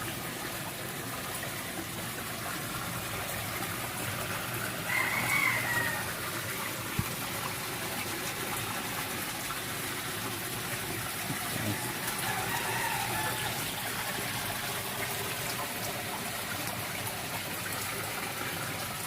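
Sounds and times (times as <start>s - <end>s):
flowing water rushing: 0.0s - 19.0s
rooster crowing: 4.6s - 6.3s, 11.6s - 13.7s.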